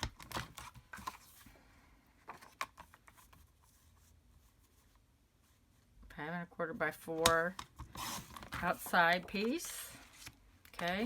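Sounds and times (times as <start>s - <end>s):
cardstock clicks and rustles: 0.0s - 1.4s, 7.2s - 11.0s.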